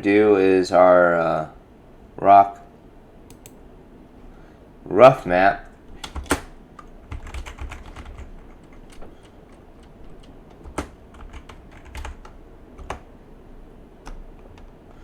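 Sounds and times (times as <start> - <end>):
typing on computer keyboard: 3.3 - 3.6, 5.9 - 13.1, 14.0 - 15.0.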